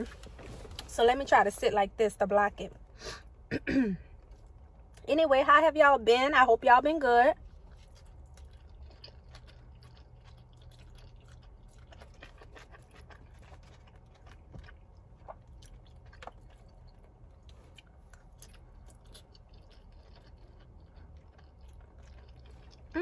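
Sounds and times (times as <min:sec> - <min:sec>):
low steady hum: 0:00.0 - 0:23.0
soft chewing: 0:07.4 - 0:23.0.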